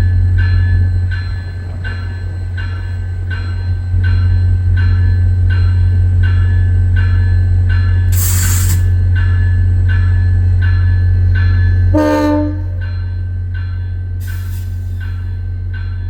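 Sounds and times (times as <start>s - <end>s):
locomotive bell ringing: 0.0s - 8.1s, 9.1s - 16.0s
locomotive engine rumble: 0.0s - 16.0s
air hiss: 8.1s - 9.0s, 14.2s - 15.2s
horn toot: 11.9s - 12.8s.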